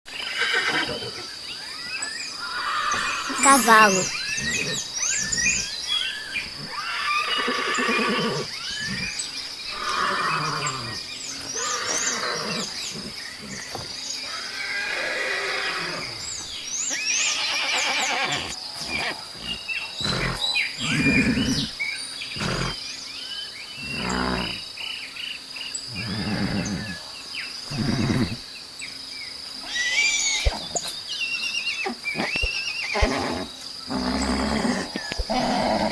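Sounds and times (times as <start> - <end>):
horses neighing and whinnying: 0.1 - 1.2, 2.4 - 16.3, 17.1 - 21.8, 22.4 - 22.8, 23.8 - 24.6, 25.9 - 27.0, 27.7 - 28.4, 29.6 - 30.9, 31.8 - 35.9.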